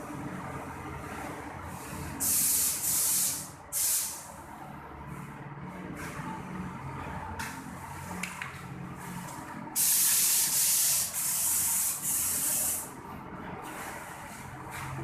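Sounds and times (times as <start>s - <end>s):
spray gun hissing: 2.2s - 4.3s, 9.8s - 12.9s.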